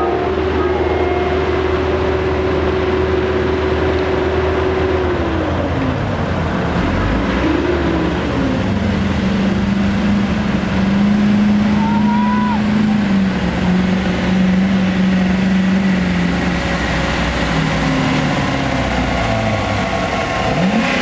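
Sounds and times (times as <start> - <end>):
diesel pickup engine under throttle: 0.0 - 21.0.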